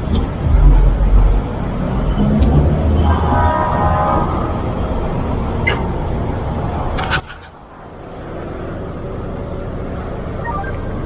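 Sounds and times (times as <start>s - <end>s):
road traffic noise: 0.0s - 11.0s
sharp clicks: 2.4s - 2.6s.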